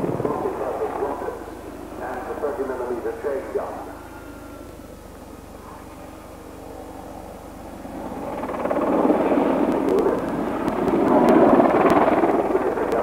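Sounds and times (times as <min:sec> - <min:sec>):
helicopter rotor and engine noise: 0:00.0 - 0:13.0.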